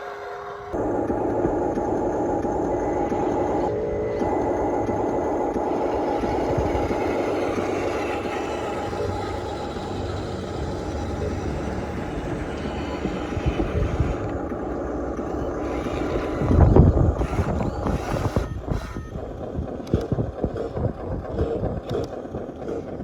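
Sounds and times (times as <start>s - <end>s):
toy electric motors whirring: 0.8s - 23.0s.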